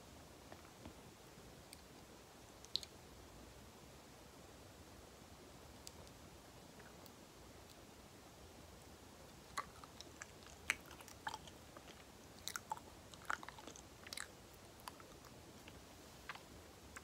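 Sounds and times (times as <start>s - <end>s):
mouth chewing sounds: 9.5s - 17.0s.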